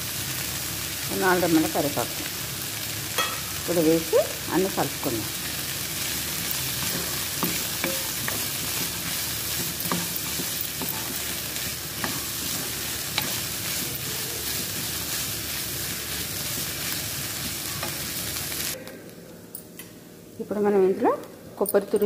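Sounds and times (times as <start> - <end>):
food sizzling in oil: 0.0 - 18.8
spatula scraping a pan: 5.4 - 15.3.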